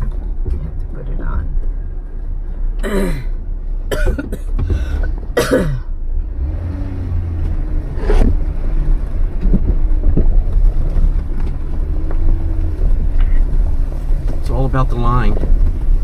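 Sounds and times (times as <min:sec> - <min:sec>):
car engine rumbling: 0:00.0 - 0:16.0
person coughing or grunting: 0:02.8 - 0:03.3, 0:03.9 - 0:04.5, 0:05.4 - 0:05.9.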